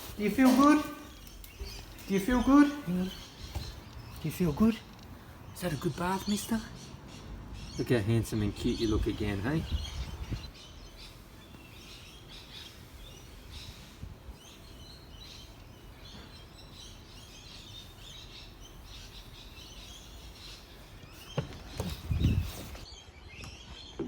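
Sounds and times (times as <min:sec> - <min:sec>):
faint birds chirping: 0:00.0 - 0:24.0.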